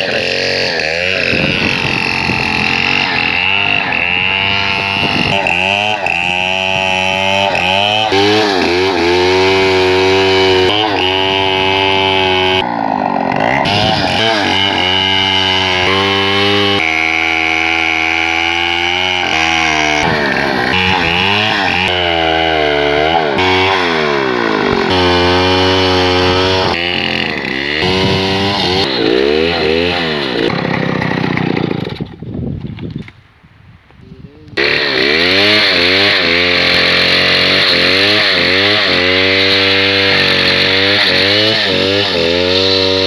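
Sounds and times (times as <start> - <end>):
chainsaw cutting log: 0.0 - 32.2, 34.5 - 43.0.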